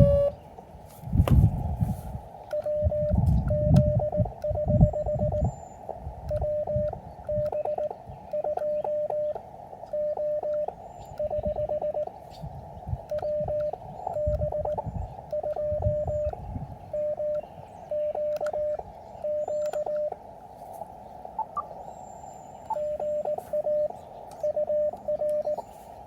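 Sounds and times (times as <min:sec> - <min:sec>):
morse code tone: 0:00.0 - 0:00.4, 0:02.5 - 0:05.5, 0:06.3 - 0:12.1, 0:13.1 - 0:20.2, 0:22.7 - 0:25.7.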